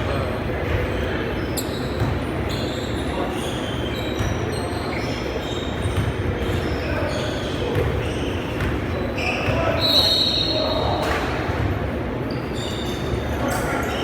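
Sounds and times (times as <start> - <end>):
sneakers squeaking on court: 0.0 - 14.0.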